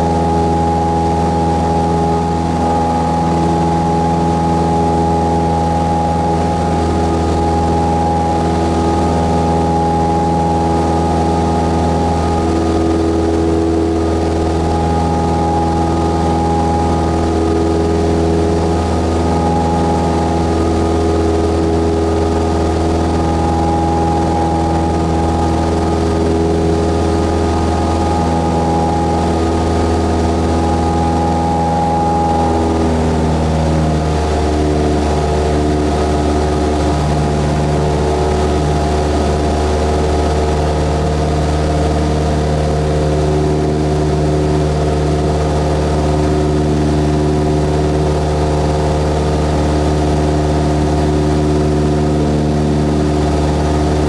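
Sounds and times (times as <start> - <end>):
airplane engine and propeller: 0.0 - 54.0.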